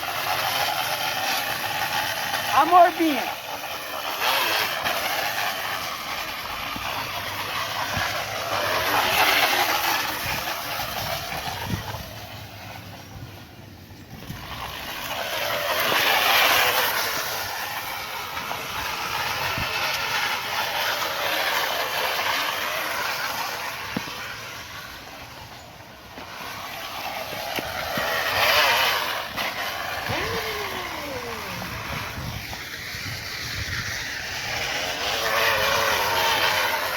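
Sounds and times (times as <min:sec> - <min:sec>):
can rattling against bicycle tyre: 0:00.0 - 0:13.1, 0:14.0 - 0:30.8, 0:31.4 - 0:36.9.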